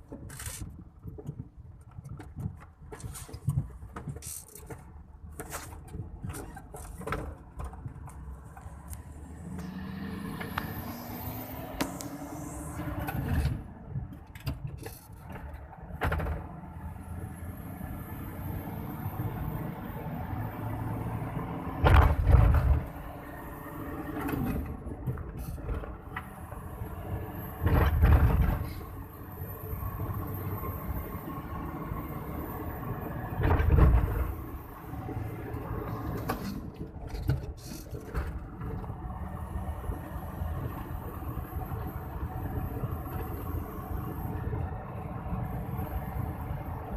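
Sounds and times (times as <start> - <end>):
truck engine shifting gears: 0.0 - 46.9.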